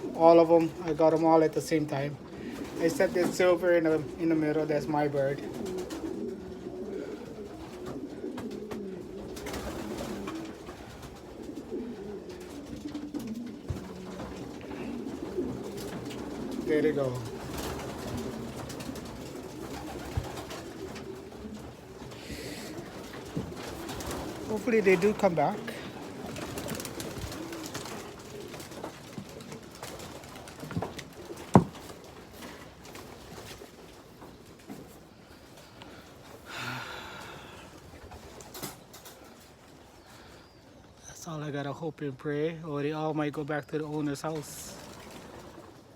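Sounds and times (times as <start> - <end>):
pigeons cooing: 0.0 - 41.4, 44.2 - 45.9
short knocks: 31.5 - 31.9.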